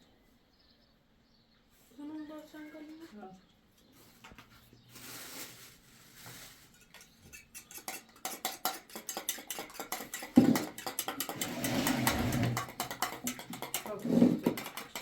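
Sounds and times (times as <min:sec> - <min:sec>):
spoon scraping metal bowl: 0:06.6 - 0:15.0.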